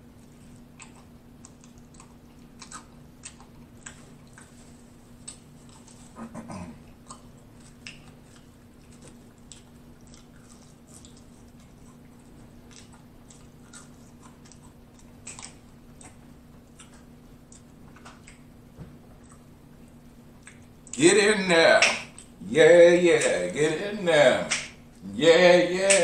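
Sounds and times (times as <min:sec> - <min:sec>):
person chewing food: 0:00.0 - 0:21.0
low electrical hum: 0:00.0 - 0:26.0
person humming: 0:21.0 - 0:26.0.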